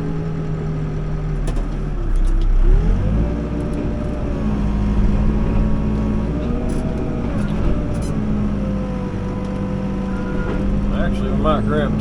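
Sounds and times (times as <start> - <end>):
diesel engine revving: 0.0 - 12.0.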